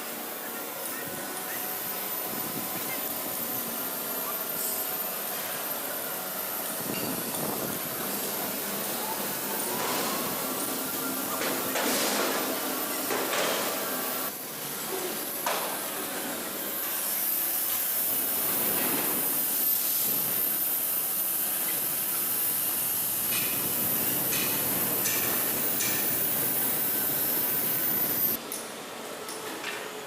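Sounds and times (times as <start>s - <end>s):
high hiss: 21.5s - 28.4s.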